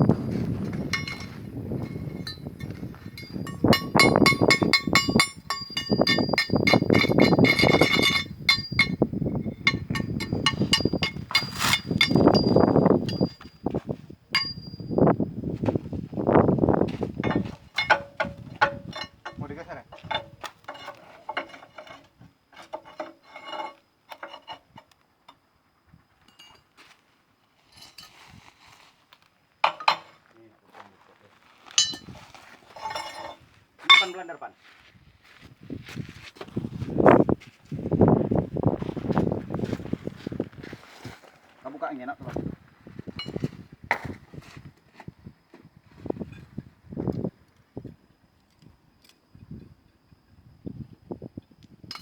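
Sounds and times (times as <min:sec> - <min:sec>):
metal tool clinks on steel: 0:00.6 - 0:13.6, 0:14.4 - 0:15.0, 0:17.2 - 0:22.0, 0:29.6 - 0:30.1, 0:31.8 - 0:32.2, 0:32.8 - 0:34.5
hammer striking metal: 0:00.9 - 0:13.4, 0:14.4 - 0:14.9, 0:17.2 - 0:19.4, 0:31.8 - 0:32.1.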